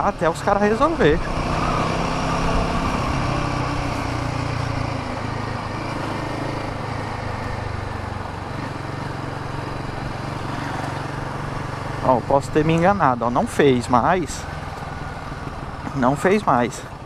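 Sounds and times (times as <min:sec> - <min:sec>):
motorcycle engine running: 0:00.0 - 0:17.0
road noise: 0:00.0 - 0:17.0
wind noise: 0:00.5 - 0:05.9.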